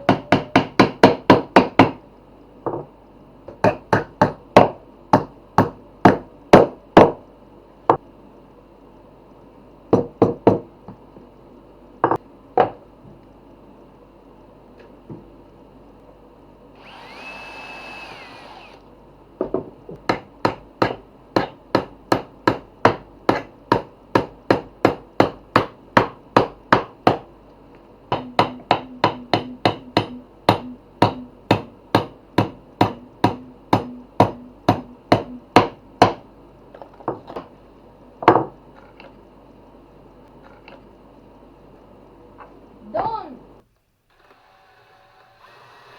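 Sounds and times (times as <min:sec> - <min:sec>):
hammer striking wood: 0:00.1 - 0:02.0, 0:03.6 - 0:07.2, 0:19.5 - 0:27.3, 0:28.1 - 0:36.2.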